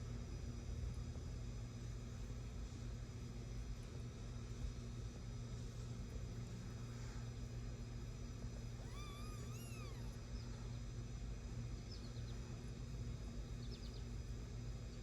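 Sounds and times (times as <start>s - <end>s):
steady low hum: 0.0s - 15.0s
kitten mewing: 8.8s - 10.5s.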